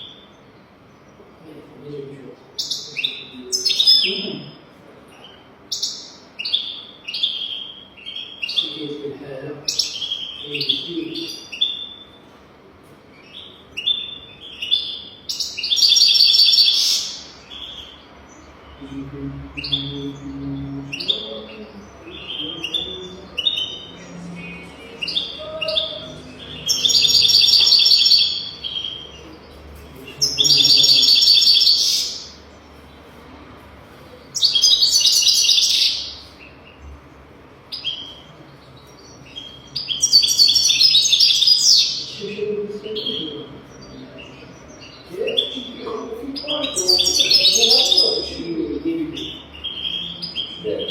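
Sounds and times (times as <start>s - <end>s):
finch twittering song: 2.5s - 12.4s, 13.1s - 33.2s, 34.3s - 37.0s, 37.6s - 50.9s.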